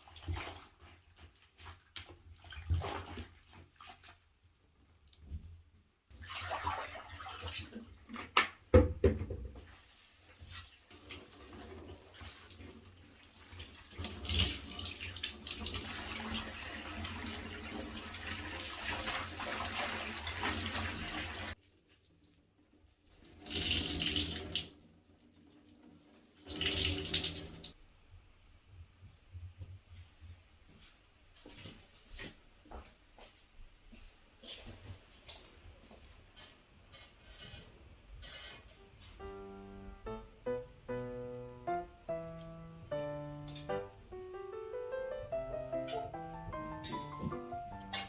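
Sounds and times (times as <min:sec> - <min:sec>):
running water: 0:09.9 - 0:21.6, 0:23.2 - 0:27.8.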